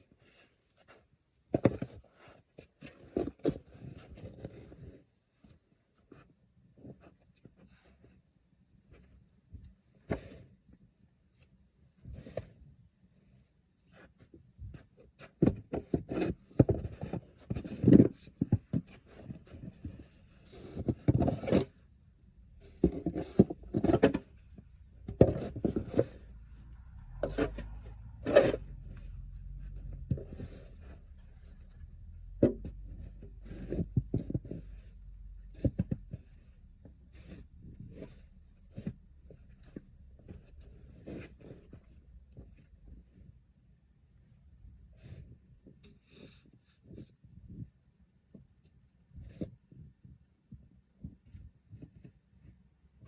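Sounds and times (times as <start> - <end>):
objects knocking and scraping: 15.2 - 21.8, 22.5 - 42.7
low steady hum: 19.2 - 43.6.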